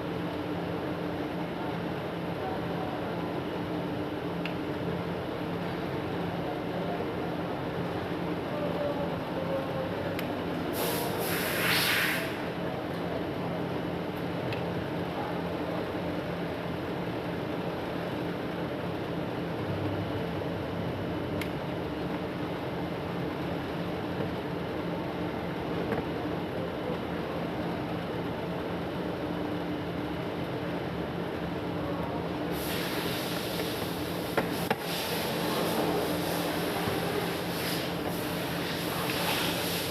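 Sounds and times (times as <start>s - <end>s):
exhaust fan humming: 0.0s - 39.9s
bright hiss: 10.8s - 12.5s, 32.5s - 39.9s.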